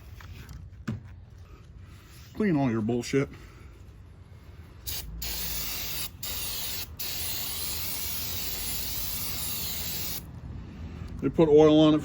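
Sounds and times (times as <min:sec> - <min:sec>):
aerosol spray hissing: 0:04.9 - 0:10.3.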